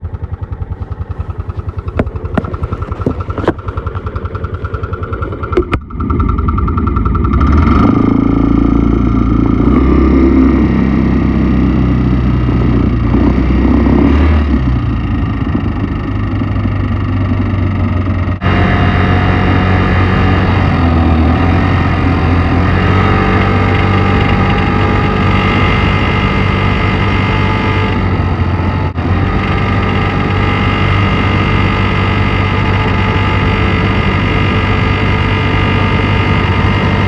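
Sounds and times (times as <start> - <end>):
sharp engine clicks: 0.0 - 8.6
scooter engine idling: 0.0 - 13.3, 14.5 - 37.0.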